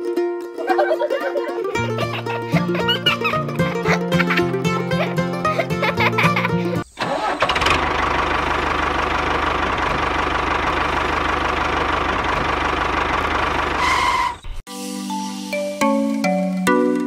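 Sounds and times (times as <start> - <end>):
tractor engine knocking: 7.0 - 14.4.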